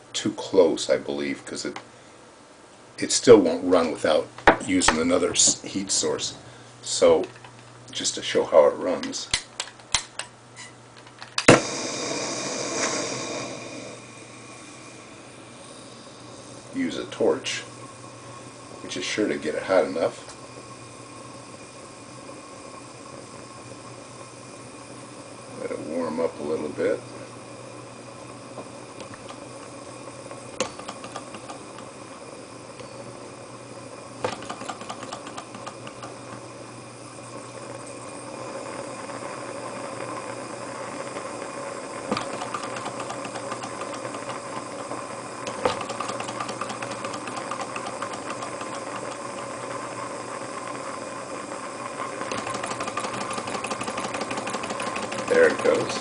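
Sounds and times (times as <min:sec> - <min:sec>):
torch flame hissing: 0:11.4 - 0:56.0.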